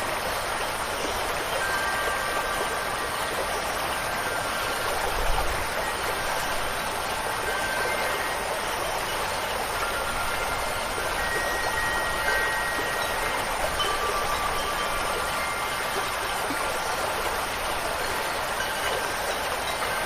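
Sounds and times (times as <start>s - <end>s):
falling and running water: 0.0s - 20.0s
wind chimes ringing: 0.0s - 20.0s.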